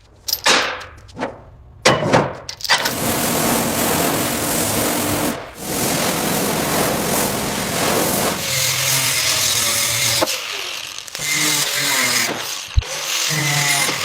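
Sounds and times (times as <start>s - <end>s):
power tool grinding: 2.7s - 14.0s
motor hum: 2.9s - 10.1s.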